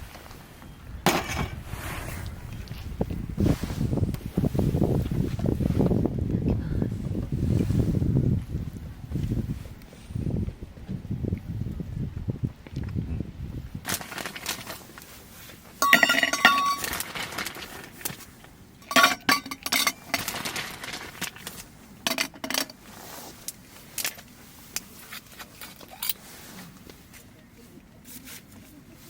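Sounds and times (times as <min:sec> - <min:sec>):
hard objects clinking and knocking: 0:15.8 - 0:17.2, 0:18.8 - 0:20.5.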